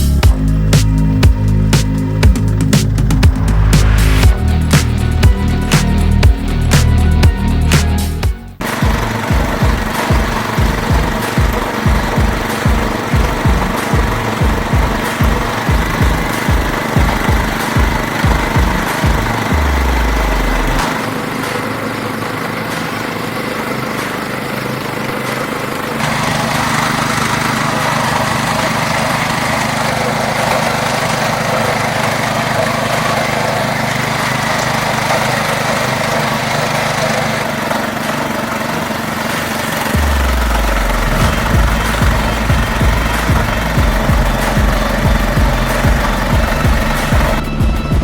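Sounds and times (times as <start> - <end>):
walk-behind tractor engine running: 0.0 - 48.0.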